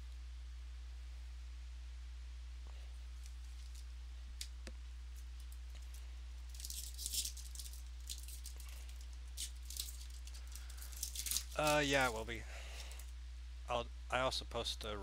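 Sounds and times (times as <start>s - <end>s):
low electrical hum: 0.0s - 15.0s
cards crinkling and rustling: 3.2s - 3.9s, 5.2s - 13.1s.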